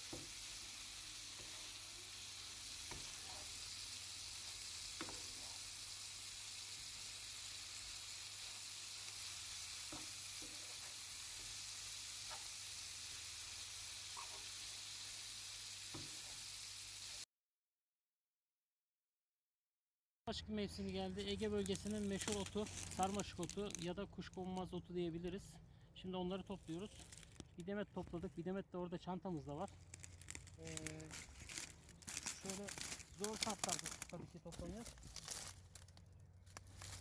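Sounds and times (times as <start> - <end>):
food sizzling in a frying pan: 0.0 - 17.3, 21.3 - 23.8, 29.7 - 35.9.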